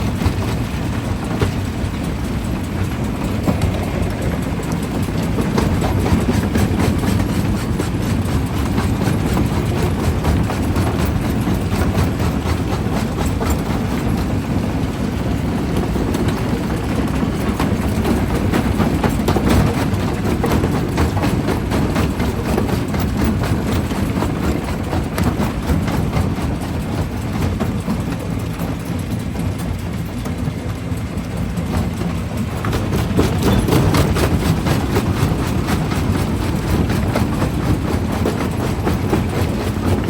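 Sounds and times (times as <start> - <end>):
machinery drone: 0.0 - 18.8.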